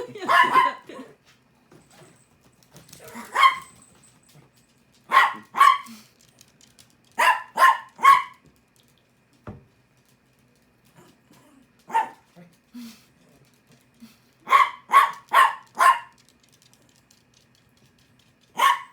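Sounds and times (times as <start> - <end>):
small dog barking: 0.2 - 0.9, 3.0 - 3.8, 5.1 - 6.0, 7.2 - 8.4, 11.8 - 12.3, 14.4 - 16.2, 18.5 - 18.9.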